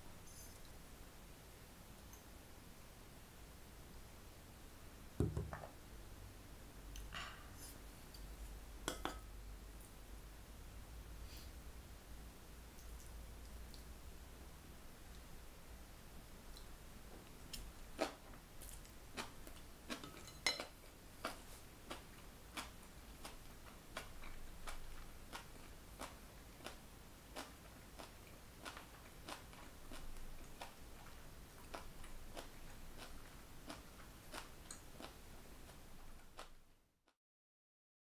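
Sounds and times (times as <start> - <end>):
crunchy chewing: 17.5 - 36.6.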